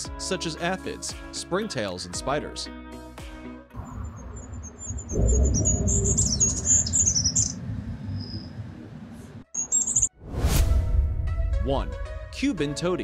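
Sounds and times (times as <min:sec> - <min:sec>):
steady low rumble: 0:03.8 - 0:09.4
bird singing high thin notes: 0:09.5 - 0:10.1.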